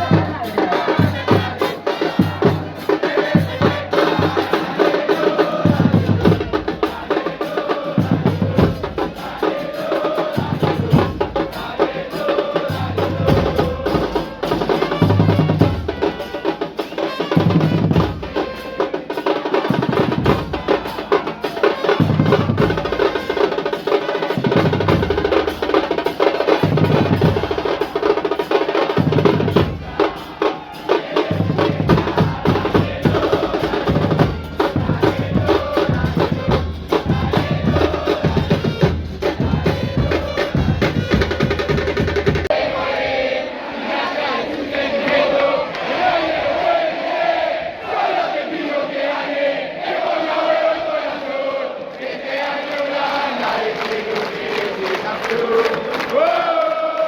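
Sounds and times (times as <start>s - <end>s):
snare drum rolls: 0.0s - 42.6s
bass drums: 31.3s - 42.5s.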